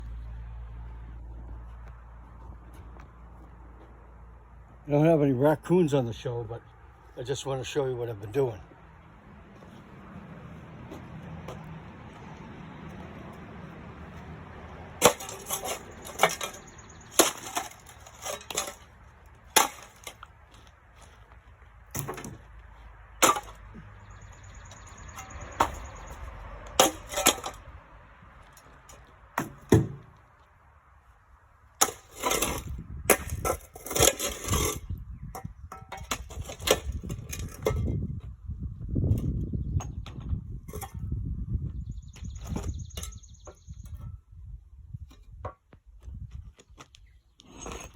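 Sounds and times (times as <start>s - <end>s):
hand tool breaking brick: 15.0s - 18.9s, 19.5s - 20.3s, 23.2s - 23.7s, 26.8s - 27.6s, 31.8s - 34.8s.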